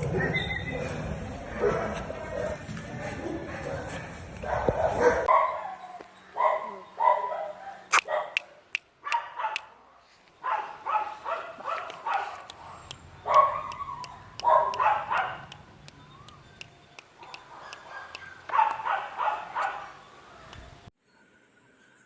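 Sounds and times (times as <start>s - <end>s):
puppies barking and yipping: 4.5s - 20.8s.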